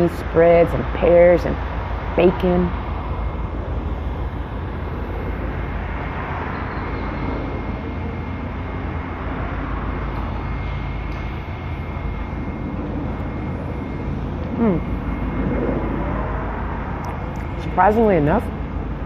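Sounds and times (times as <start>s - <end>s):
low background rumble: 0.0s - 19.0s
faint high tone: 13.8s - 15.2s.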